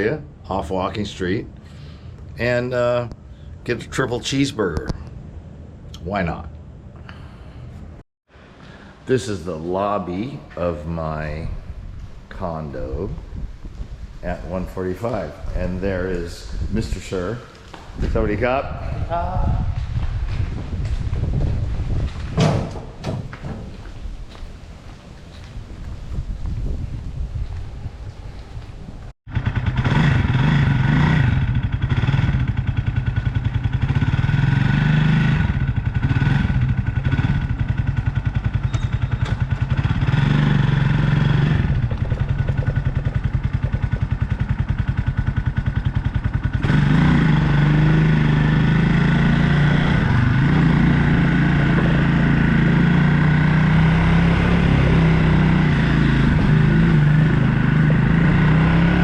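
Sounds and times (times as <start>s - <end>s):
motorbike engine running: 29.3s - 59.0s.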